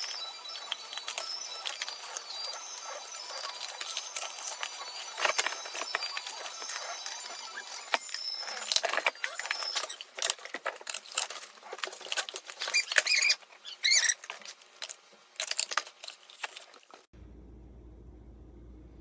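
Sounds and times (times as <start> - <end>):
plastic containers rustling and clicking: 0.0 - 17.1
short high squeaks: 12.4 - 14.3.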